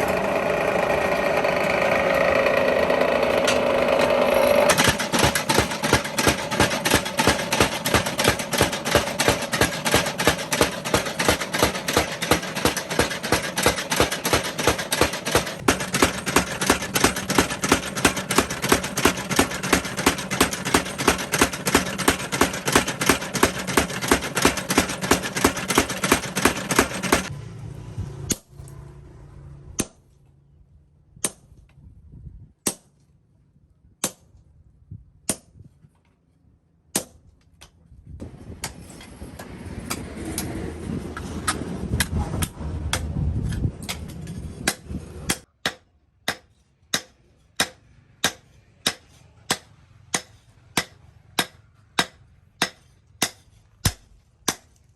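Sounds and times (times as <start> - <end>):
steady rushing noise: 38.2 - 45.4.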